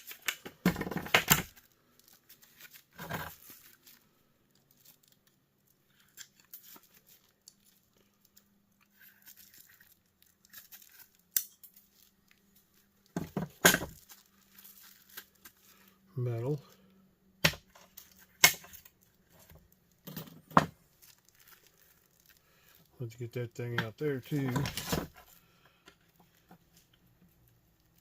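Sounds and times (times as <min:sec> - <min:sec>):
small parts clicking and rustling: 0:00.0 - 0:15.9, 0:17.7 - 0:23.0.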